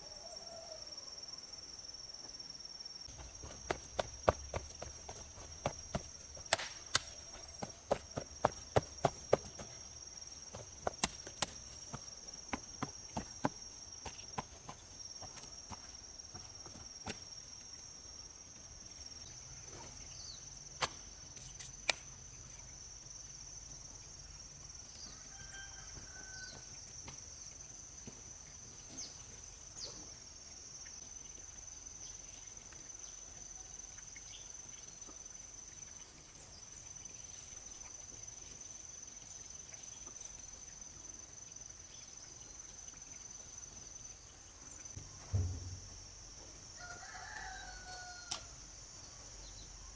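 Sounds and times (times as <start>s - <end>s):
high insect drone: 0.0s - 49.9s
sharp knocks: 45.0s - 46.0s.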